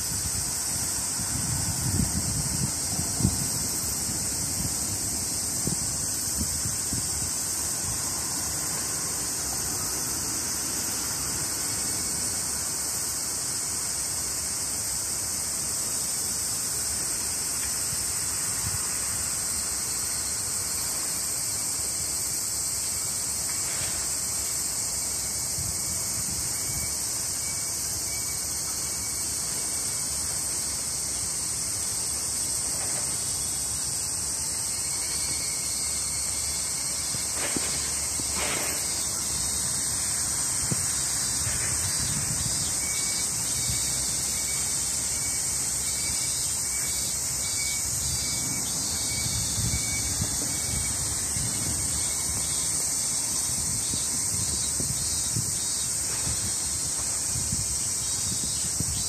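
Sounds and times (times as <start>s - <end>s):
low wind rumble: 0.0s - 8.7s
insects chorus: 0.0s - 59.0s.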